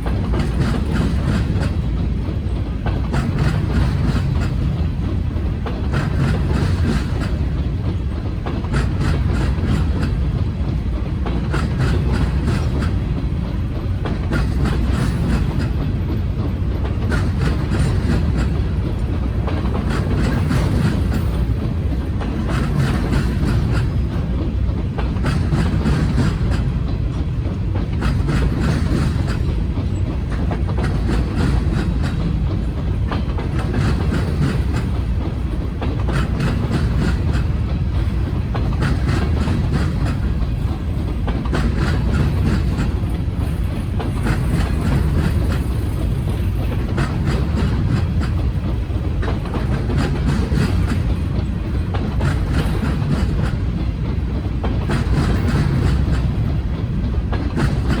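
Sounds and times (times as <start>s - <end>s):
freight train rumbling past: 0.0s - 58.0s
wheels clacking over rail joints: 0.0s - 58.0s.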